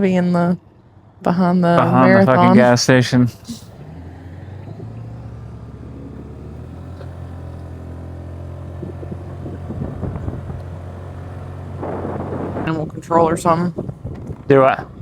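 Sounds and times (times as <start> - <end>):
small engine running steadily: 3.6 - 15.0.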